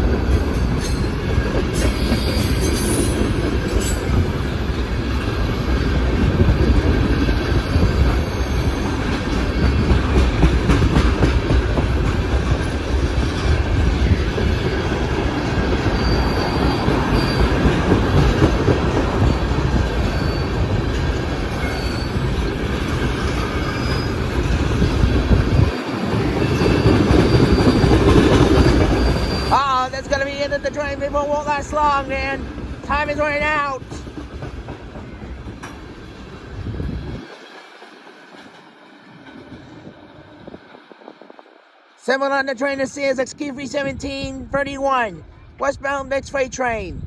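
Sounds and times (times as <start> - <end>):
faint wheel squeals: 20.1 - 20.6, 29.0 - 29.6.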